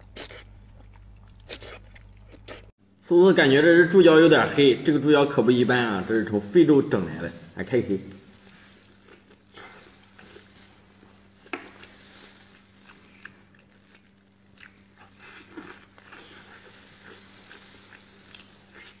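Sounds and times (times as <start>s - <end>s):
faint steady hum: 0.0s - 19.0s
meat and skin tearing: 5.4s - 19.0s
wet chewing and lip-smacking: 12.8s - 16.2s.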